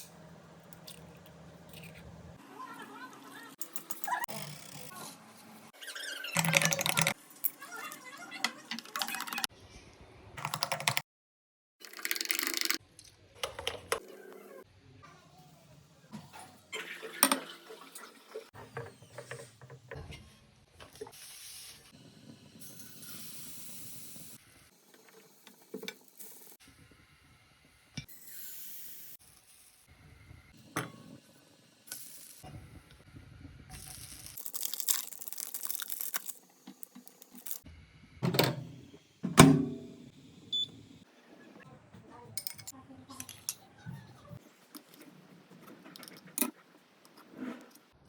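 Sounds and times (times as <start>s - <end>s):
pouring whisking or sizzling hiss: 33.7s - 37.6s
clicks and clinks of utensils: 42.4s - 43.6s.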